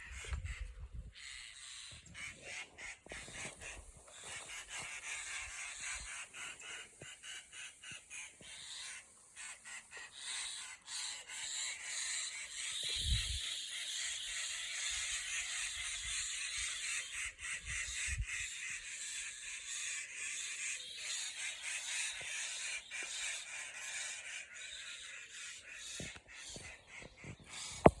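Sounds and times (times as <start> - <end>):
low rumbles of wind: 0.0 - 1.2
birds chirping chorus: 0.0 - 28.0.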